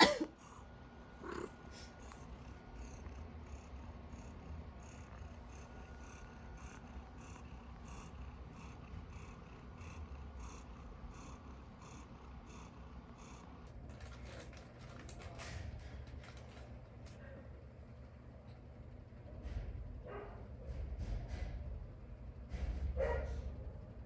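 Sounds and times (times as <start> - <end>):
cat purring: 0.4 - 17.2.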